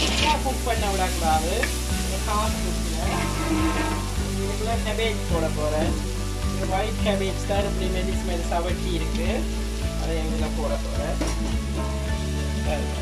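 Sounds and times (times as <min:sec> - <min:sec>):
metal spatula scraping a pan: 0:00.0 - 0:00.6, 0:01.6 - 0:04.4
background music: 0:00.0 - 0:13.0
vegetables sizzling in a wok: 0:00.0 - 0:13.0.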